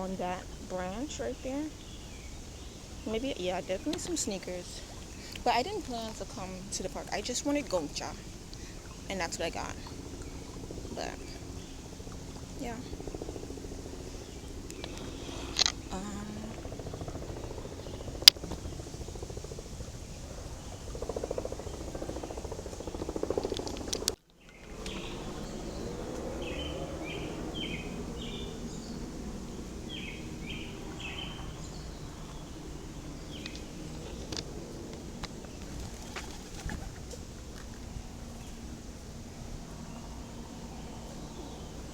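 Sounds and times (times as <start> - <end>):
bird chirping: 0.0 - 13.4, 20.1 - 41.9
outdoor park background noise: 0.0 - 41.9.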